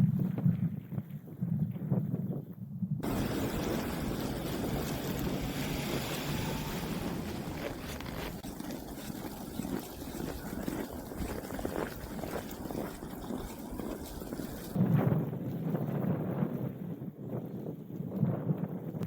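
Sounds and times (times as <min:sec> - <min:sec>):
wind rushing: 0:03.0 - 0:08.6
low vehicle rumble: 0:03.0 - 0:10.6.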